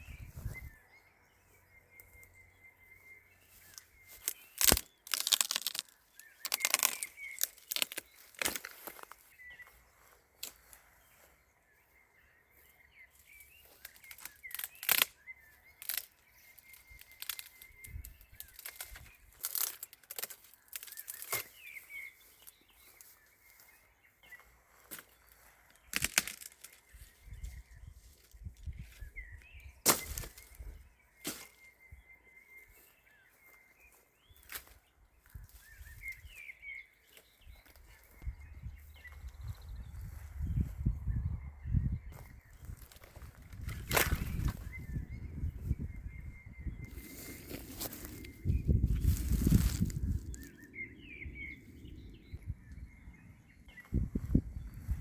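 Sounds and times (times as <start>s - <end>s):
twigs snapping: 3.6s - 9.2s, 10.4s - 10.8s, 13.7s - 23.1s, 24.9s - 27.0s, 29.8s - 30.6s, 31.2s - 31.6s, 42.2s - 45.0s, 46.9s - 50.7s.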